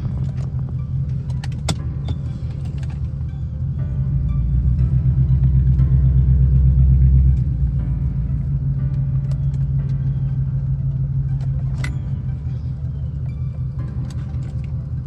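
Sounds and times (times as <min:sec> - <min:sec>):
car engine and exhaust rumble: 0:00.0 - 0:15.0.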